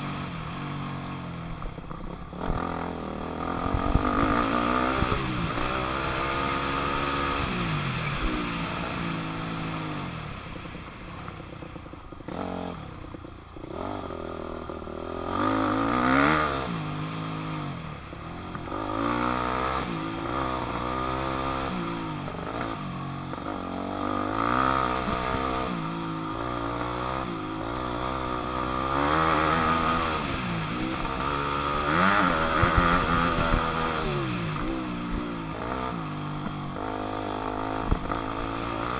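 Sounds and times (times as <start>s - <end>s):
dirt bike engine revving: 1.8s - 10.2s, 13.6s - 38.9s.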